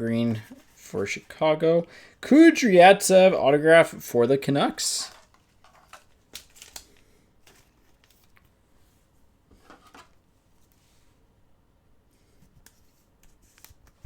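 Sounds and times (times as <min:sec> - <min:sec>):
trading cards clicking and rustling: 0:04.8 - 0:08.5.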